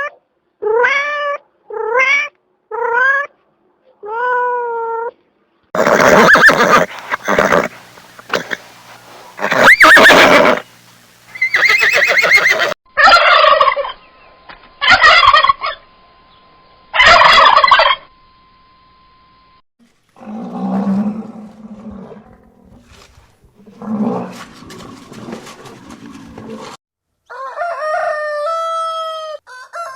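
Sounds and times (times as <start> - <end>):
turkey calls: 5.8 - 15.8, 16.9 - 18.1
turkey gobbling: 11.3 - 14.1, 14.8 - 15.8, 17.0 - 18.1.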